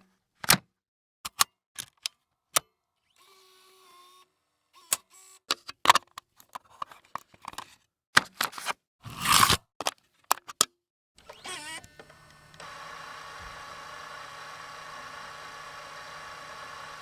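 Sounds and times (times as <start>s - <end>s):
short mechanical whir: 11.2s - 17.0s.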